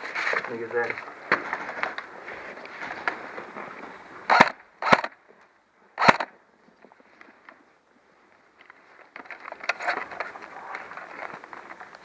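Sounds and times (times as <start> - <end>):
rustling noise: 0.0 - 4.3, 6.6 - 12.0
airsoft gun shots: 4.3 - 5.2, 6.0 - 6.3.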